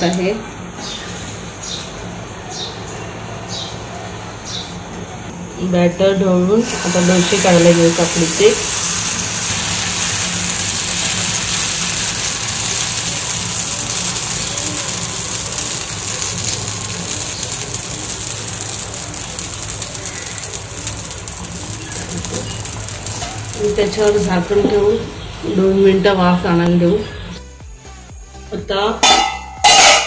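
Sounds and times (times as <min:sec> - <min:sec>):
batter sizzling on griddle: 0:06.6 - 0:26.6, 0:29.0 - 0:30.0.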